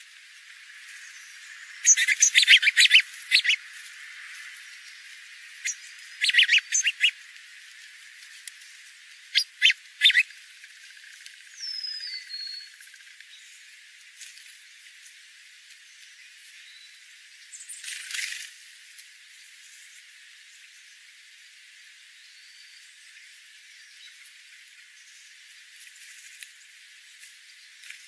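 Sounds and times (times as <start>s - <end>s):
steady hiss: 0.0s - 28.0s
bird chip notes: 1.8s - 3.6s, 5.6s - 7.2s, 9.4s - 10.2s.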